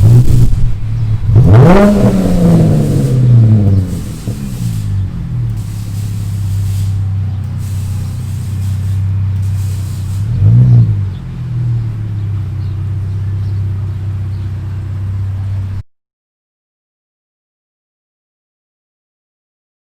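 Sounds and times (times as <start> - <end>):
engine revving: 0.0 - 15.7
car engine idling: 0.0 - 15.8.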